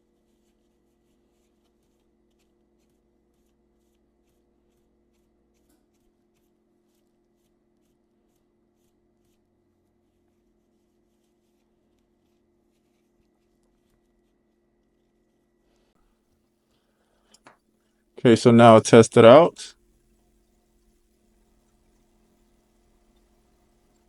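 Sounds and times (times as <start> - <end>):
faint steady hum: 18.2 - 19.7.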